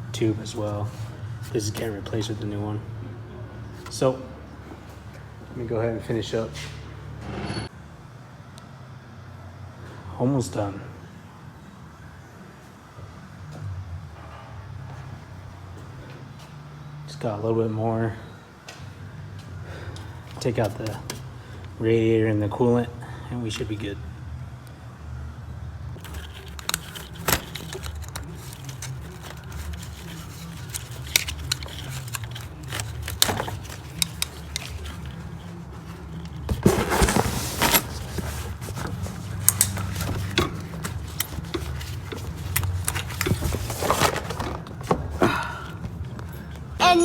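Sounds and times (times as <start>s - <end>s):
metal tools clinking: 26.0s - 45.0s.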